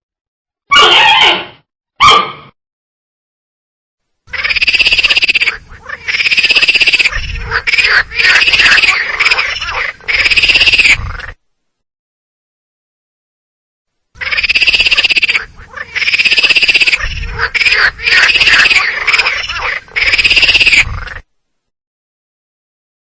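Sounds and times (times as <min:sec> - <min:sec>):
animal calling: 0:00.7 - 0:02.4, 0:04.3 - 0:11.4, 0:14.2 - 0:21.3
rapid pulsing animal call: 0:04.3 - 0:11.4, 0:14.2 - 0:21.3.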